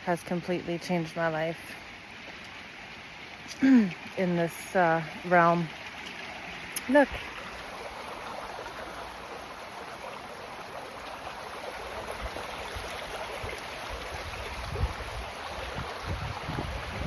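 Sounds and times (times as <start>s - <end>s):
water flowing: 0.0s - 17.0s
wind on microphone: 13.9s - 17.0s.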